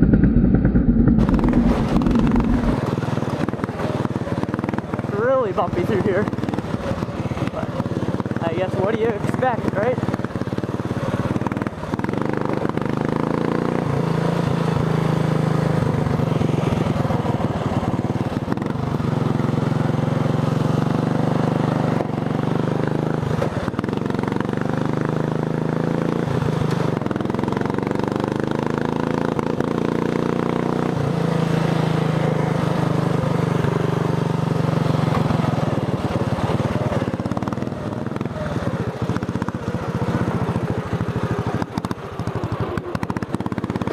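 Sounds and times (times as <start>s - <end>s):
lawn tractor engine revving: 0.0s - 8.2s.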